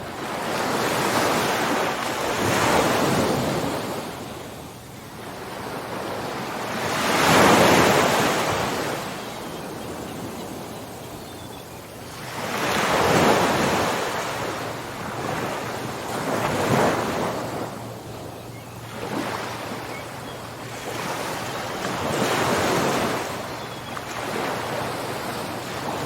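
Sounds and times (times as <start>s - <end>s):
ocean waves surging: 5.2s - 10.8s, 12.2s - 18.2s, 18.9s - 26.0s.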